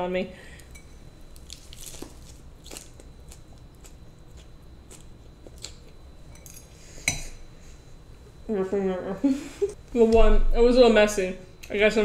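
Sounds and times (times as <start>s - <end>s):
chewing crisp lettuce: 1.4s - 5.9s.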